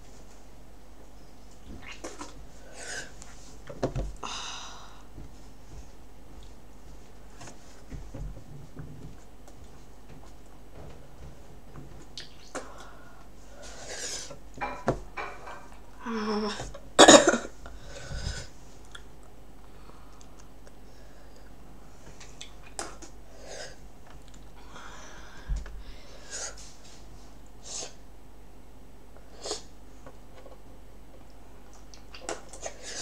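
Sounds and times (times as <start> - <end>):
man coughing: 17.0 - 17.5.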